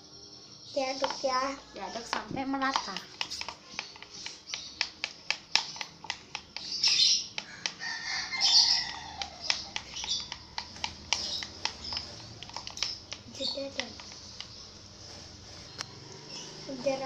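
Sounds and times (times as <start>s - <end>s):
stirrer clicking against container: 1.0s - 14.7s
squeaky scraping strokes: 7.8s - 17.0s.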